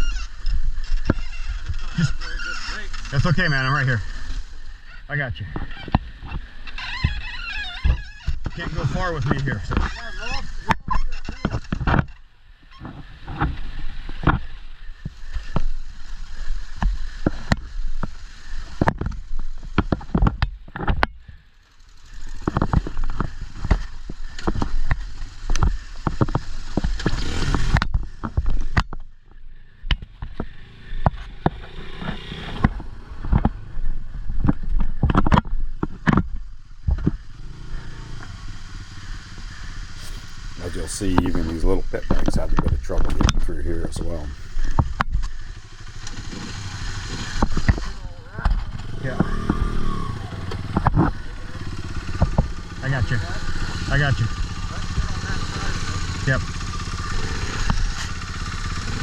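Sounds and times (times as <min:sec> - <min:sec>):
pit bike engines running: 0:00.0 - 0:11.8, 0:21.6 - 0:28.4, 0:35.9 - 0:59.0.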